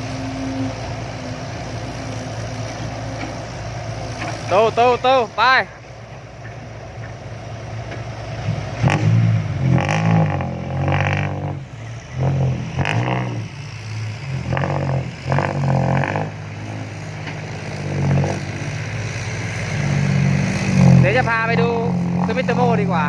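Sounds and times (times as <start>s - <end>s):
diesel truck engine revving: 0.0s - 23.0s.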